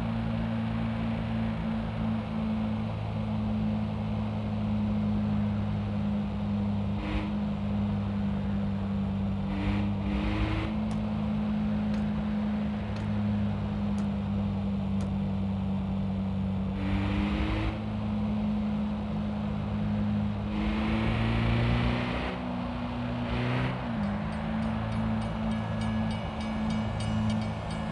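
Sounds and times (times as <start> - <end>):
car engine hum and road noise: 0.0 - 27.9
passing traffic whooshes: 19.3 - 27.9.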